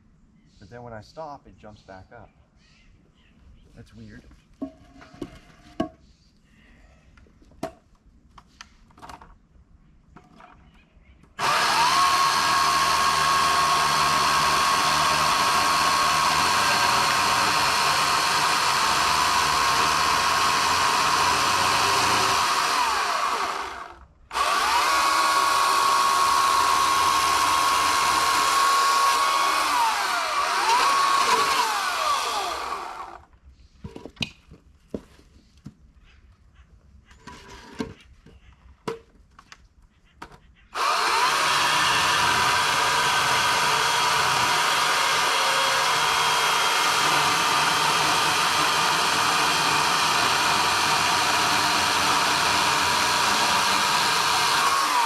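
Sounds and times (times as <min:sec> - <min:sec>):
electric chainsaw cutting wood: 0:11.4 - 0:33.3, 0:40.8 - 0:55.0.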